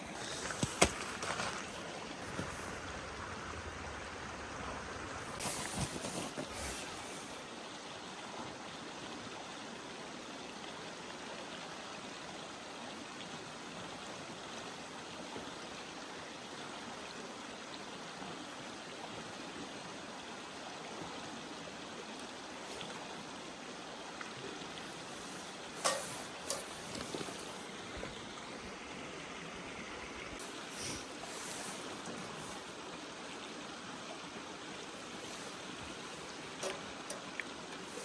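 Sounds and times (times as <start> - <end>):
stream flowing: 0.0 - 38.0.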